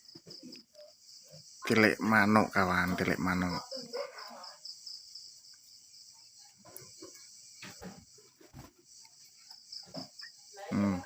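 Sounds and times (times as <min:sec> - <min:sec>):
insect chirring: 0:00.0 - 0:11.0
soft knocks and rustles: 0:06.8 - 0:09.0.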